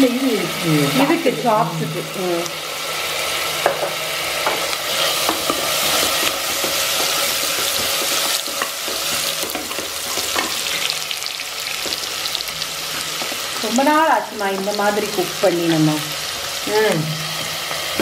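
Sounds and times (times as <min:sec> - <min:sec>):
onions sizzling in hot oil: 0:00.0 - 0:18.0
wooden spatula scraping pot: 0:04.4 - 0:10.9.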